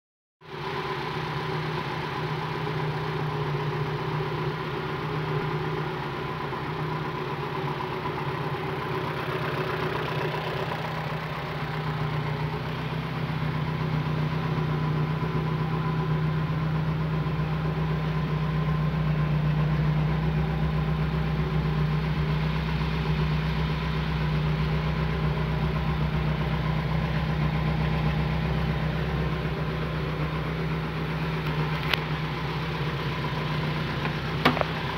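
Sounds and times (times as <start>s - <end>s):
car engine idling: 0.4s - 34.9s.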